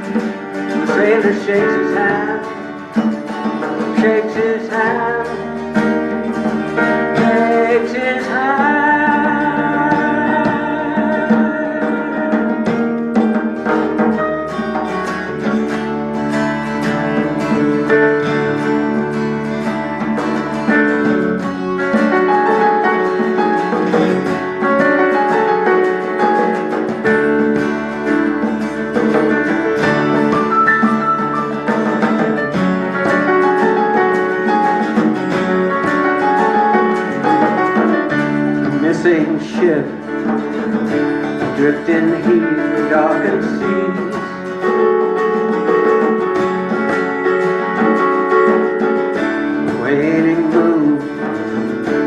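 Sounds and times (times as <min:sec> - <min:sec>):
person singing: 0:00.0 - 0:13.0, 0:36.2 - 0:45.1, 0:49.6 - 0:52.0
acoustic guitar picking: 0:00.0 - 0:52.0.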